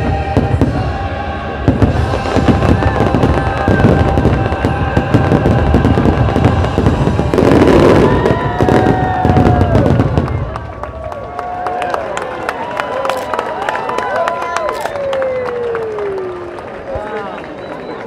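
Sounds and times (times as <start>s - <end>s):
music playing: 0.0s - 8.1s
fireworks bangs and crackling: 0.0s - 11.7s.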